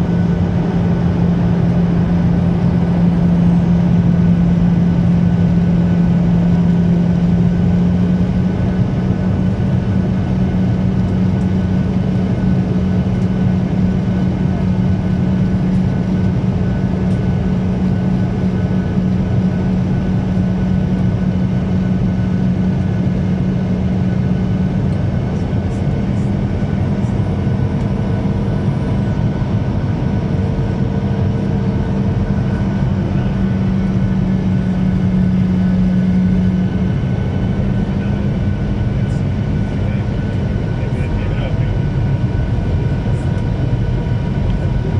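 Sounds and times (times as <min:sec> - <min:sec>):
airliner drone: 0:00.0 - 0:44.9.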